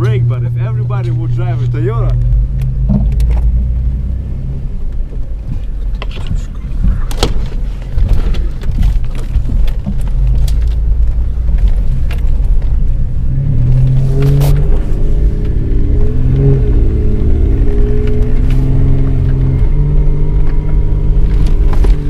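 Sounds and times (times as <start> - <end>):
jeep engine rumbling: 0.0 - 22.0
knocks and rattles over rough ground: 2.1 - 3.7, 4.8 - 16.2.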